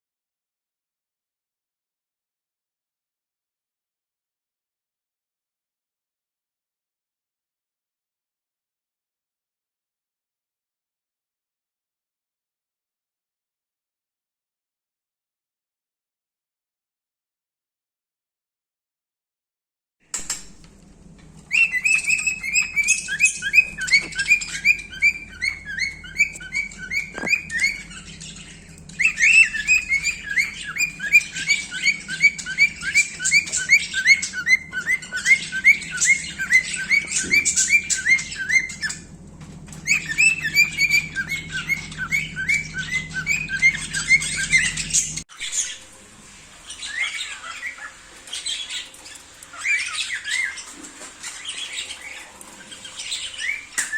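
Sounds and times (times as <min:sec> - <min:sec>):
cockatiel whistling and chirping: 0:21.4 - 0:39.1, 0:39.7 - 0:45.8, 0:46.6 - 0:53.9.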